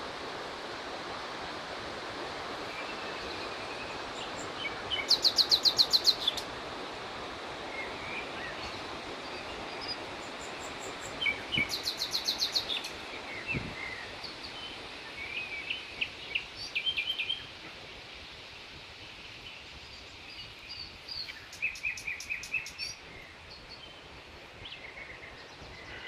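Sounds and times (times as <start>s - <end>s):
outdoor background hiss: 0.0s - 26.0s
small birds chirping: 2.8s - 6.5s, 7.8s - 17.6s, 19.4s - 26.0s.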